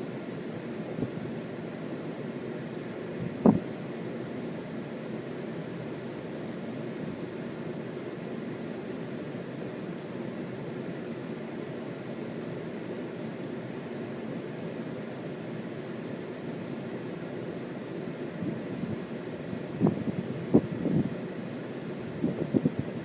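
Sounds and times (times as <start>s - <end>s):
strong wind blowing: 3.2s - 3.6s, 19.8s - 21.2s, 22.2s - 23.0s.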